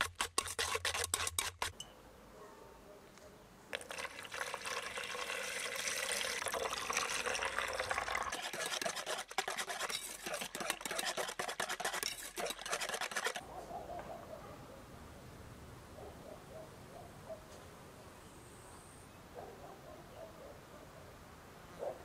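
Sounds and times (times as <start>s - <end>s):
liquid stirred in a bowl: 0.0s - 1.8s, 3.7s - 13.4s.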